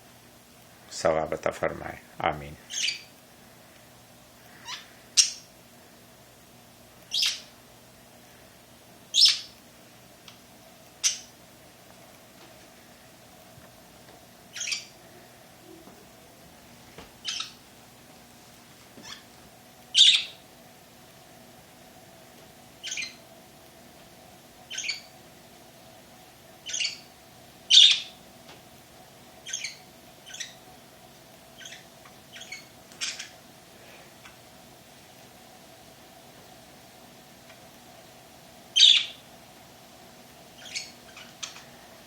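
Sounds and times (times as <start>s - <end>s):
birds calling harshly: 2.6s - 3.2s, 4.5s - 5.5s, 7.1s - 7.6s, 9.1s - 9.6s, 11.0s - 11.4s, 14.5s - 15.0s, 17.2s - 17.6s, 19.9s - 20.4s, 22.8s - 23.2s, 24.7s - 25.1s, 26.6s - 27.1s, 27.7s - 28.2s, 29.4s - 30.6s, 31.5s - 33.4s, 38.8s - 39.2s, 40.6s - 41.7s.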